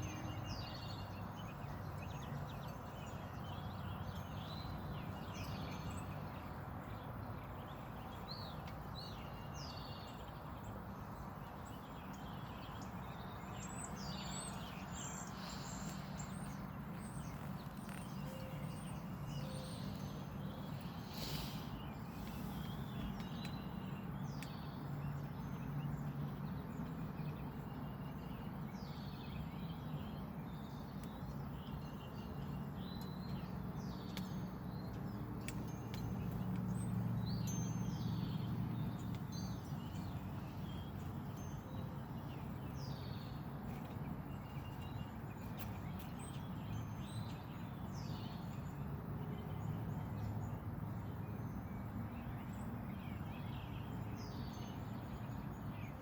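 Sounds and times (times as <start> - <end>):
birds chirping and calling: 11.1 - 25.6.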